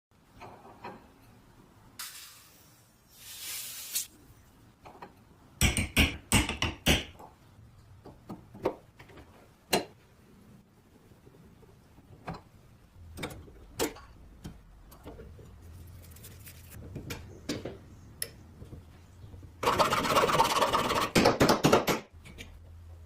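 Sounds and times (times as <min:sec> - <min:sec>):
brief hissing: 0:02.0 - 0:04.1.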